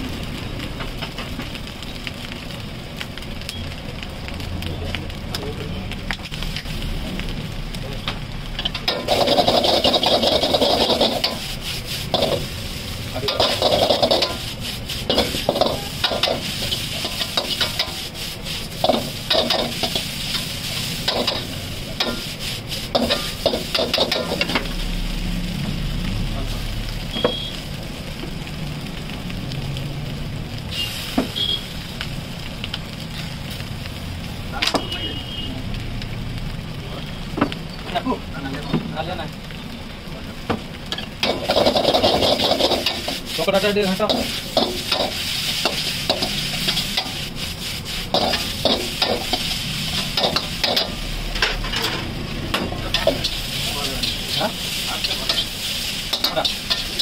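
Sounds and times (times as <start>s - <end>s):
frying sizzle: 0.0s - 57.0s
ladle scraping and clanking in a wok: 8.6s - 24.8s, 40.9s - 57.0s.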